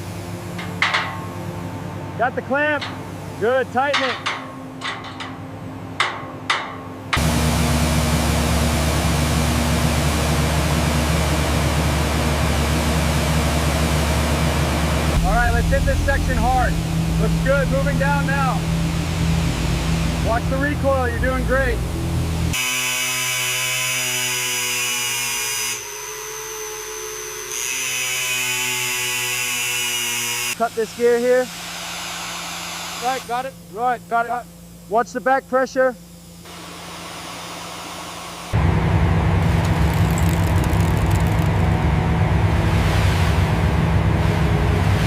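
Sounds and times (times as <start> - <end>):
low machine hum: 0.0 - 22.6, 33.1 - 45.0
metallic clank: 0.5 - 1.5, 2.8 - 3.2, 3.8 - 7.2
power tool whining: 22.5 - 30.6.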